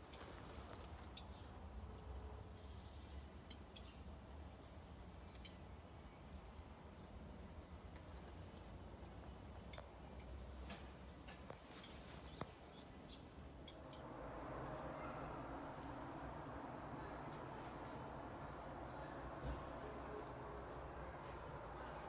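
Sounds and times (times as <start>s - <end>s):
small bird chirping: 0.0s - 14.1s
faint low rumble: 11.5s - 22.0s.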